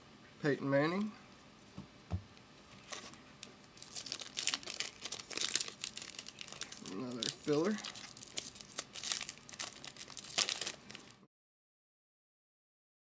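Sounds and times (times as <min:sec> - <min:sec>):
foil wrapper crinkling: 0:02.8 - 0:11.2.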